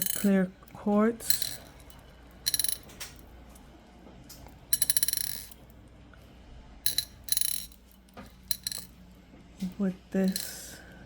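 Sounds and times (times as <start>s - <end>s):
crystal beads clicking and rattling: 0.0s - 0.4s, 1.2s - 3.0s, 4.8s - 5.6s, 10.2s - 10.8s.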